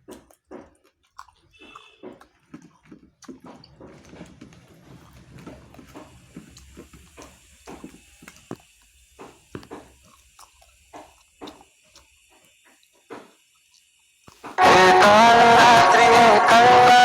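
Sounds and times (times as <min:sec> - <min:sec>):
person chewing food: 0:00.0 - 0:14.6.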